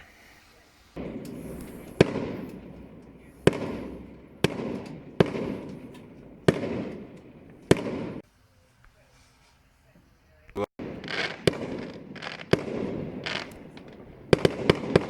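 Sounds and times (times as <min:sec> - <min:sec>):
fireworks bangs with echo: 0:00.8 - 0:08.3, 0:10.8 - 0:15.0.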